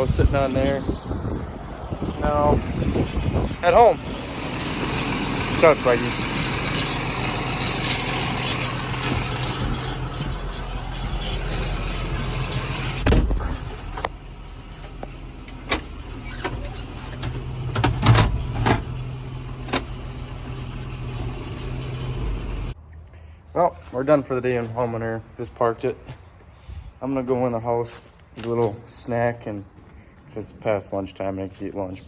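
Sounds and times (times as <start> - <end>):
tractor engine running: 0.0 - 22.8
thump: 13.0 - 13.6.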